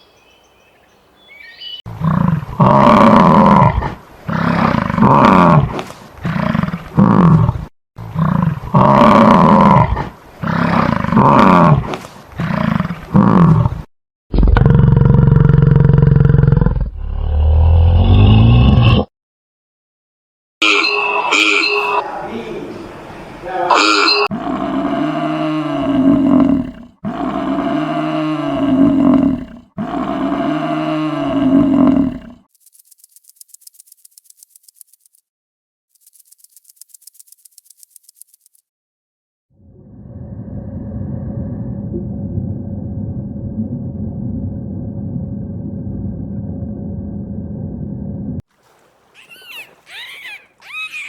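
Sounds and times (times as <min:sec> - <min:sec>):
big cat roaring and growling: 0:01.9 - 0:19.1, 0:23.7 - 0:32.5, 0:39.6 - 0:48.4.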